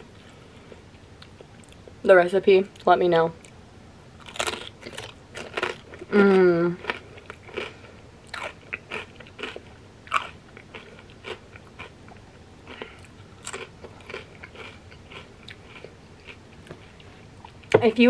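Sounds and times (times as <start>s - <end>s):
crunching and chewing chips: 4.2s - 17.7s.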